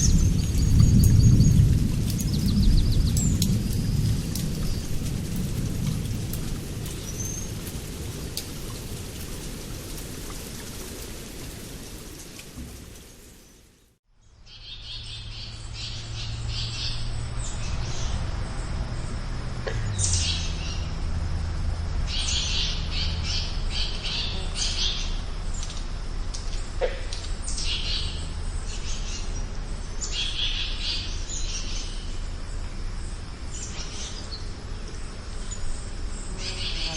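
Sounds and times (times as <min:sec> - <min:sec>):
birds chirping: 0:00.0 - 0:05.4
rain hiss: 0:00.0 - 0:14.0, 0:15.1 - 0:36.9.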